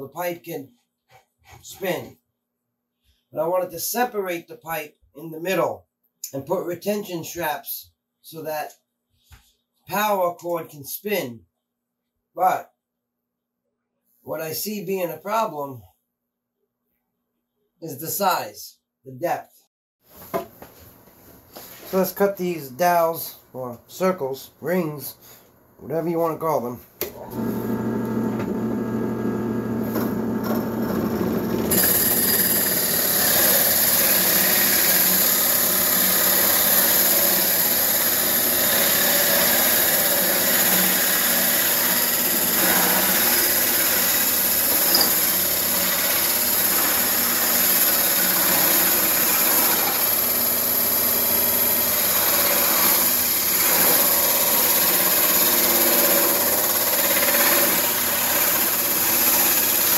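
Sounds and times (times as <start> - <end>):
power drill with hole saw: 27.0 - 59.9
hole saw grinding into wood: 29.8 - 59.9.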